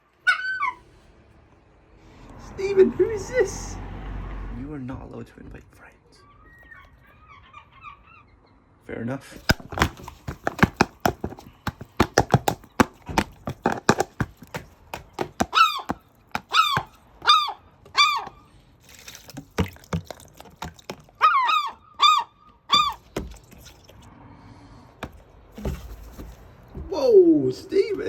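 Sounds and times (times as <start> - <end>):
sharp clicks and taps: 9.4 - 17.0
gull squawking calls: 15.4 - 18.5, 21.2 - 23.0.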